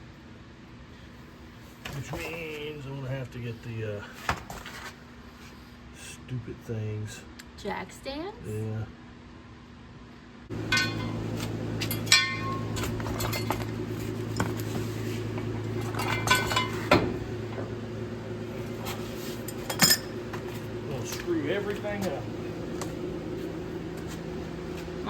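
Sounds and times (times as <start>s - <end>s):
steady low hum: 0.0s - 25.0s
metal jack stands clanking: 10.6s - 13.7s, 15.8s - 17.2s.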